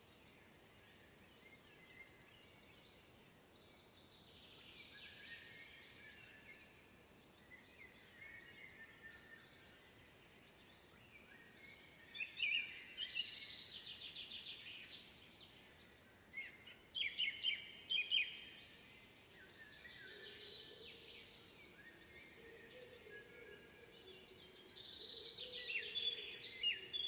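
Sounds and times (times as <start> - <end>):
songbirds singing: 0.0 - 27.0
trilled bird song: 16.4 - 18.8, 19.4 - 27.0.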